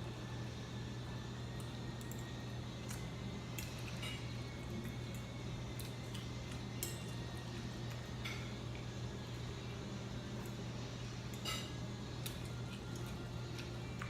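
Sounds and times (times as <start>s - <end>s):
steady low hum: 0.0s - 14.0s
cutlery clinking on a plate: 11.4s - 11.8s.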